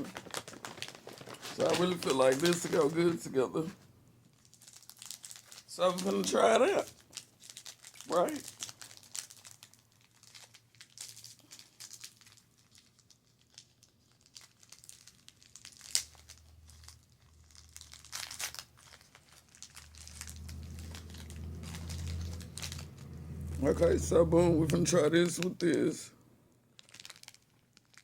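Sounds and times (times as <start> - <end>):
snack packaging crinkling and tearing: 0.0 - 3.7, 4.3 - 28.0
low steady hum: 16.2 - 26.6.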